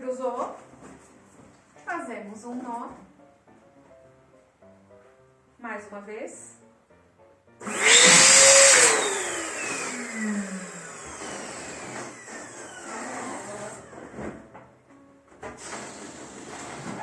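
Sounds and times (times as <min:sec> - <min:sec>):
electric balloon inflator motor: 0:07.6 - 0:14.5, 0:15.4 - 0:17.0.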